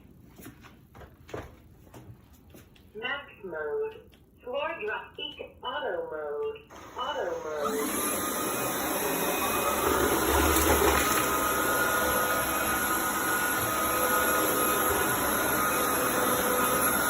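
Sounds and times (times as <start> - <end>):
vacuum cleaner running: 6.7 - 17.0.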